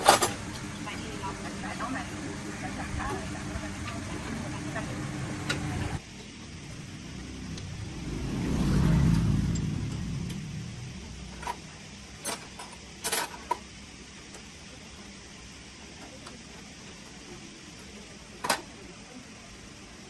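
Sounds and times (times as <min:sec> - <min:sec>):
vehicle passing by: 0:06.5 - 0:12.2.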